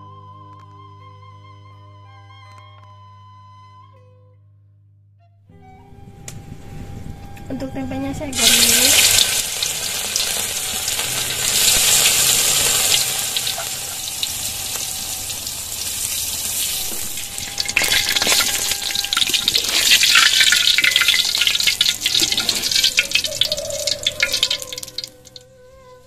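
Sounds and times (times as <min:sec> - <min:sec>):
food deep-frying in oil: 0:08.3 - 0:25.4
oil popping sharply: 0:08.4 - 0:25.4.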